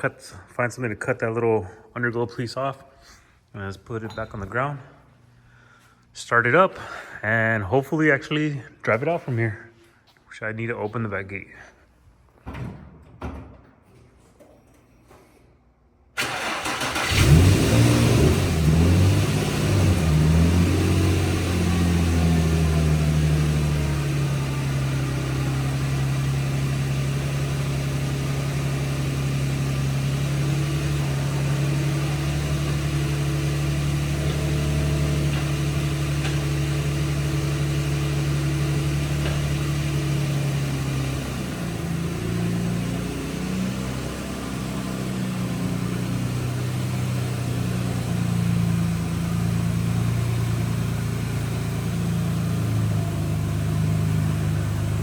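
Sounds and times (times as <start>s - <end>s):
car engine idling: 16.2s - 55.0s.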